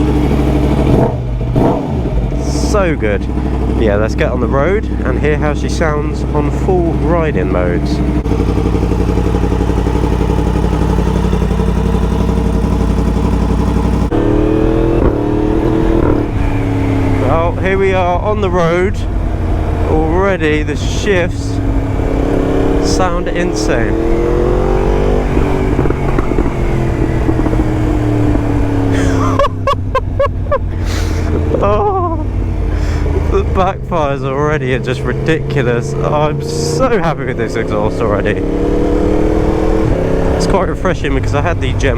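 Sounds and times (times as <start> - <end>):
motorcycle engine idling: 0.0 - 38.5, 39.2 - 41.9
exhaust backfire pops: 0.7 - 2.4, 11.5 - 16.6, 25.2 - 28.7.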